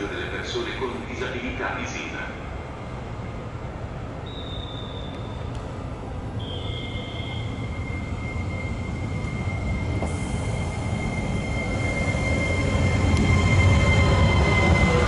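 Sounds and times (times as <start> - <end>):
train rumbling: 0.0 - 15.0
high-pitched squeal: 6.4 - 15.0.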